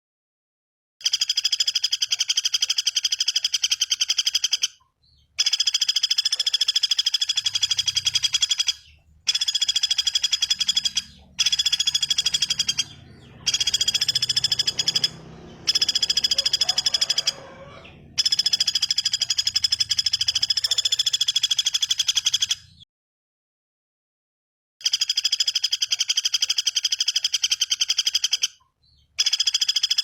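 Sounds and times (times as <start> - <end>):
bird trilling: 1.1 - 22.8.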